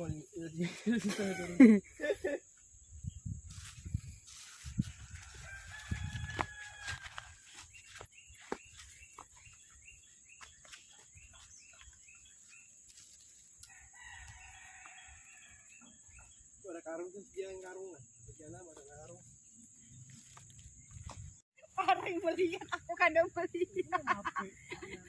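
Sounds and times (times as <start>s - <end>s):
rooster crowing: 5.0s - 7.5s, 13.7s - 15.9s.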